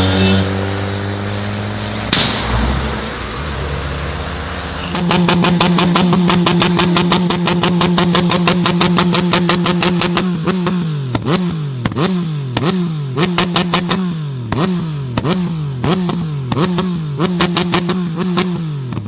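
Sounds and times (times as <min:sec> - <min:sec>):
car engine revving: 0:00.0 - 0:19.0
exhaust pops and bangs: 0:02.0 - 0:03.4, 0:04.9 - 0:19.0.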